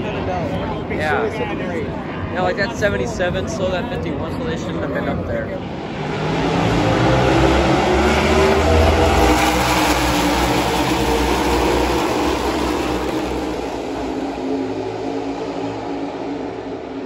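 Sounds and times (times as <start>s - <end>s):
race car engines passing: 4.2s - 17.0s.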